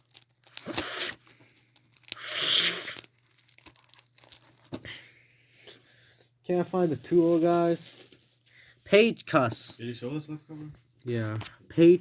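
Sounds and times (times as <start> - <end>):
plastic shrink wrap tearing: 0.0 - 4.8, 7.1 - 8.5.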